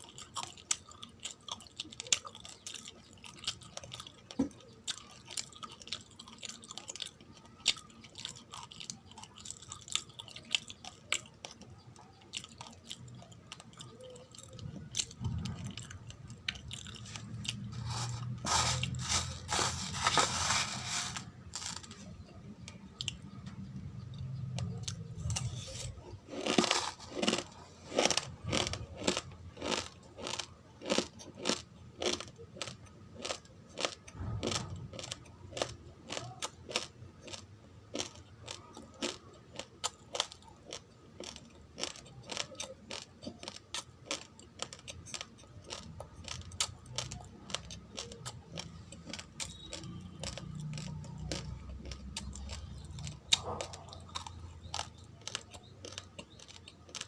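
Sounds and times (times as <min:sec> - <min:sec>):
chewing crunchy rice grains: 0:00.0 - 0:57.0.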